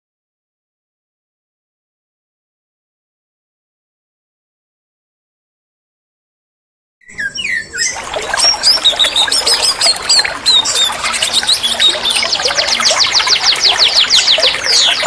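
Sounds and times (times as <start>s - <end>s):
songbird whistles and chattering: 7.0s - 15.0s.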